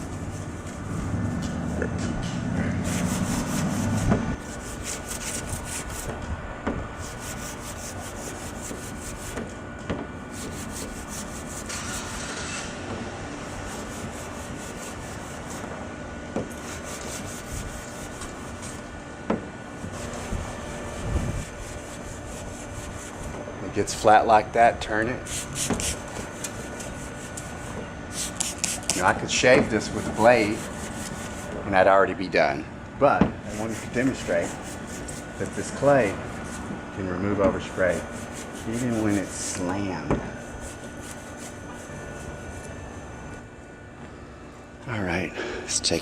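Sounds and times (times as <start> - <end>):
clay bar scraping car paint: 0.0 - 6.2, 7.0 - 9.5, 10.3 - 12.8, 13.4 - 15.8, 16.5 - 18.9, 19.8 - 23.3, 25.2 - 31.6, 33.5 - 36.7, 37.4 - 42.8.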